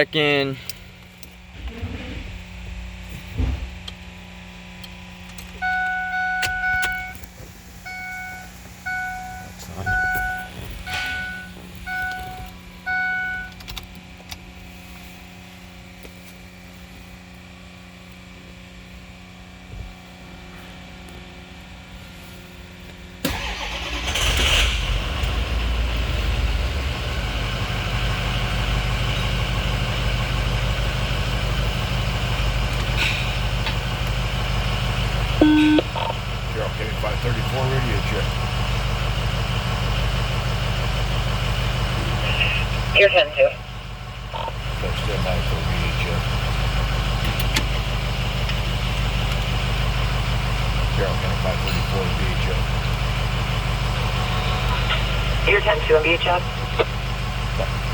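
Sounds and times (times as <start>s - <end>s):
diesel engine cranking and idling: 0.0s - 57.9s
warning tone beeps: 5.6s - 7.2s, 7.9s - 13.5s, 35.4s - 36.2s.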